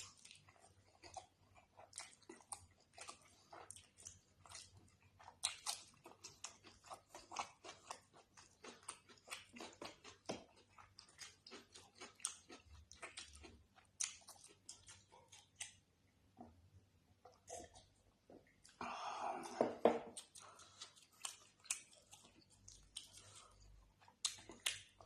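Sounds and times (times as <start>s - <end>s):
wet mouth chewing smacks: 1.9s - 15.8s, 20.1s - 25.0s.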